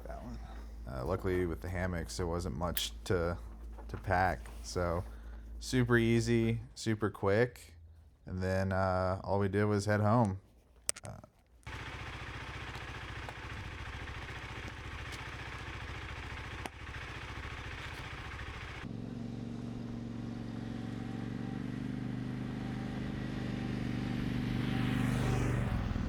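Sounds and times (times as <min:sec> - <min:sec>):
motorcycle engine running: 0:11.7 - 0:26.0.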